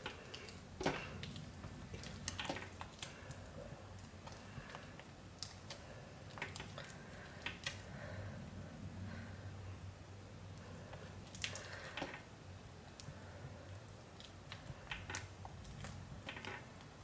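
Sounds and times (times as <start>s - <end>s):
spatula stirring thick paste: 0.0s - 8.2s, 12.8s - 17.0s.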